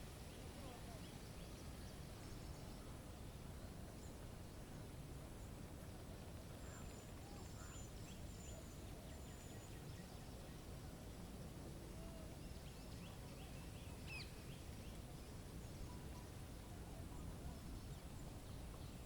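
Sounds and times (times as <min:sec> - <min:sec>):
songbirds calling: 0:06.5 - 0:10.7, 0:12.0 - 0:19.0.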